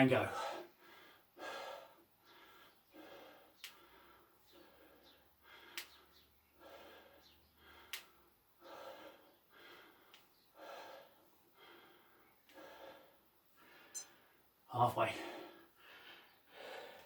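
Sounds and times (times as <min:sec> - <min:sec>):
person breathing hard: 0:00.3 - 0:14.6, 0:15.2 - 0:17.0
sharp clicks: 0:03.6 - 0:03.8, 0:05.7 - 0:06.0, 0:07.9 - 0:08.2.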